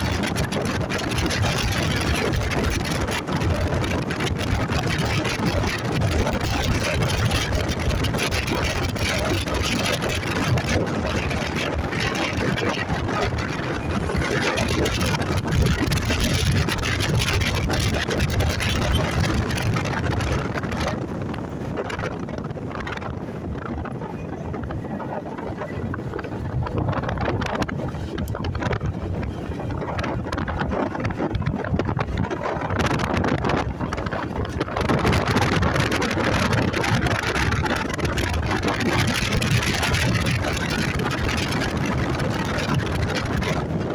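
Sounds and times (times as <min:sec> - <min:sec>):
wind rushing over microphone: 0:00.0 - 0:43.9.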